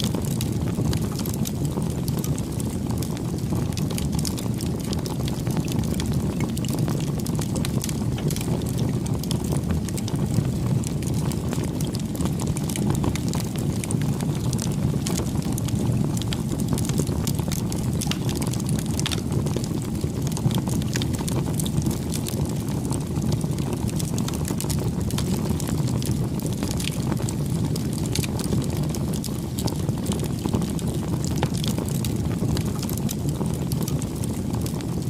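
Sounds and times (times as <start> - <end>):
burning wood crackling and popping: 0.0 - 35.0
rush of flames: 0.0 - 35.0.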